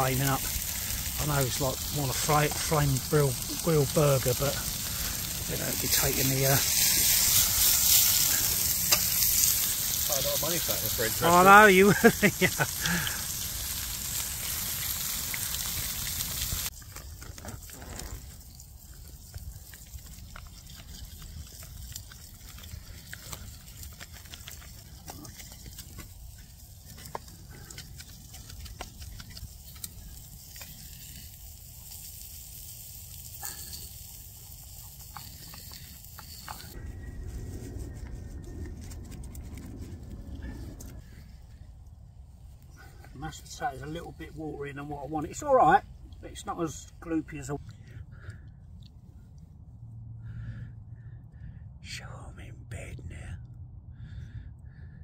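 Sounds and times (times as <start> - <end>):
burgers sizzling in a pan: 0.0 - 36.8
low rumble: 36.2 - 43.2.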